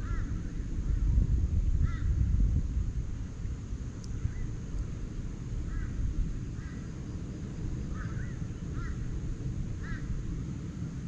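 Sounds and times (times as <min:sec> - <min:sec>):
steady low rumble: 0:00.0 - 0:11.0
birds calling: 0:07.8 - 0:09.2.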